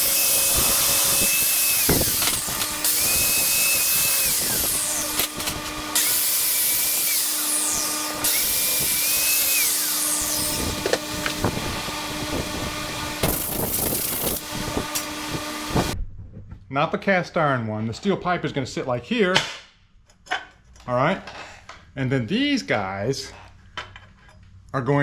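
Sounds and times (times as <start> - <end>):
angle grinder whine: 0.0 - 16.0.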